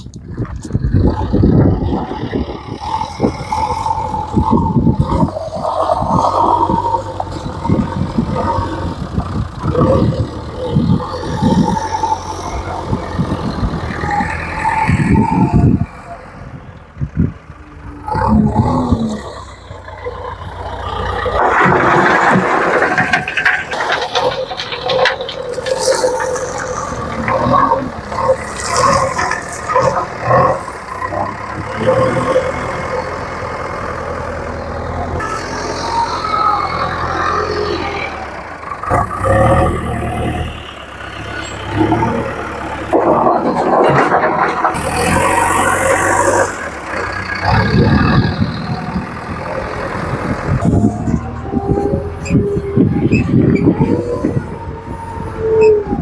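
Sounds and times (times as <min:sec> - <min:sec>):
backhoe engine running: 0:00.0 - 0:56.0
irregular clatter: 0:18.2 - 0:34.4, 0:35.2 - 0:51.3.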